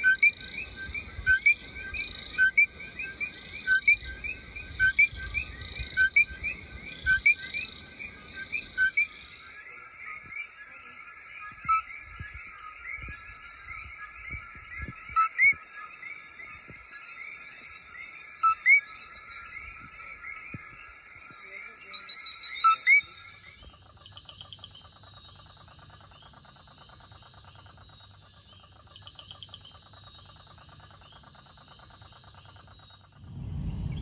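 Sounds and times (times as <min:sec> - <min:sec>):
frogs calling in chorus: 0:00.0 - 0:26.2
steady high hum: 0:33.2 - 0:34.0.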